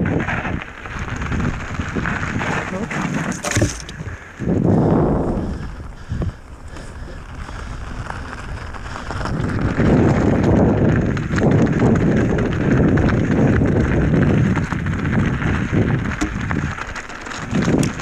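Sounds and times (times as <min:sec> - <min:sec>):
mountain bike tyre rumble: 0:00.0 - 0:18.0
wind on microphone: 0:00.0 - 0:18.0
bike rattling knocks: 0:03.0 - 0:04.2, 0:16.0 - 0:18.0.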